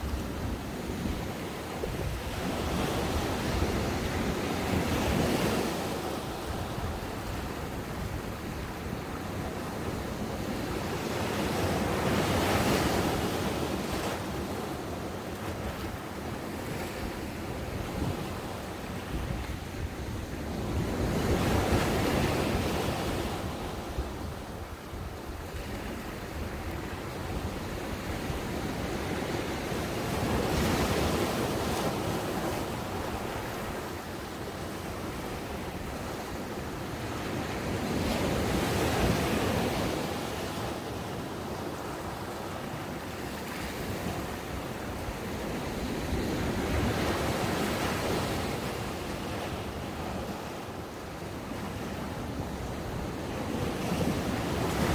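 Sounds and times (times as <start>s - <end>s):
wind on microphone: 0.0s - 14.1s, 15.6s - 40.8s
ocean waves breaking on beach: 0.0s - 54.9s.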